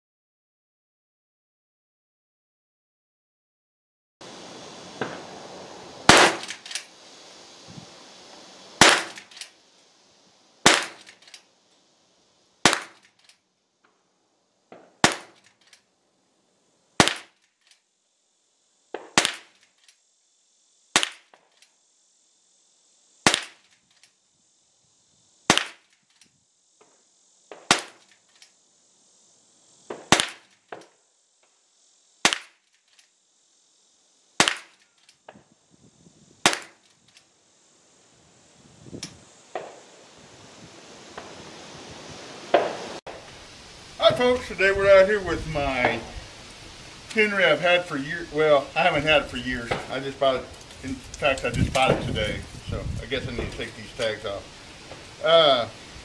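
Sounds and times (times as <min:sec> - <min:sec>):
rifle shots: 0:06.0 - 0:06.9, 0:08.8 - 0:09.4, 0:10.6 - 0:11.4, 0:12.6 - 0:13.1, 0:14.8 - 0:15.5, 0:17.0 - 0:17.4, 0:19.0 - 0:19.6, 0:20.9 - 0:21.3, 0:23.2 - 0:23.6, 0:25.5 - 0:25.9, 0:27.6 - 0:28.1, 0:29.9 - 0:30.5, 0:34.4 - 0:34.8, 0:36.4 - 0:36.8.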